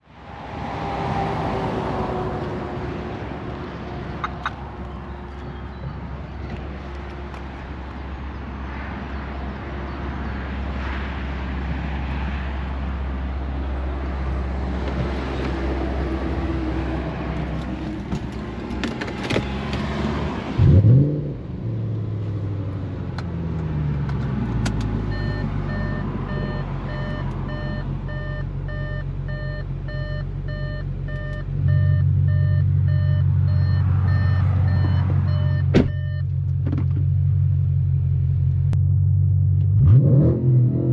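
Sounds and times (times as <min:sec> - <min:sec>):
car engine starting and idling: 0:14.2 - 0:40.8
electronic beeps: 0:25.1 - 0:36.2.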